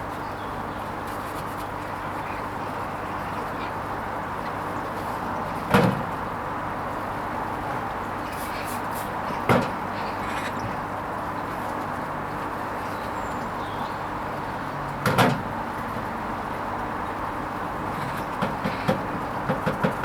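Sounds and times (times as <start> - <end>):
washing machine humming: 0.0 - 20.0
washing machine knocks: 15.0 - 15.5, 18.3 - 20.0.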